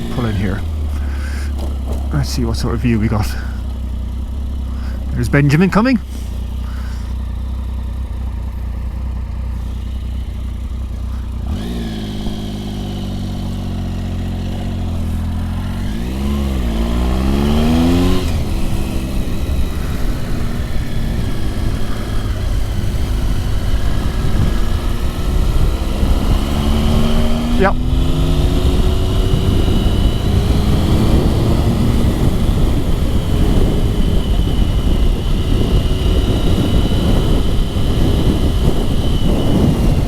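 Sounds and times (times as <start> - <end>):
motorcycle idling: 0.0 - 40.0
motorcycle passing: 0.0 - 40.0
wind rush: 15.7 - 40.0.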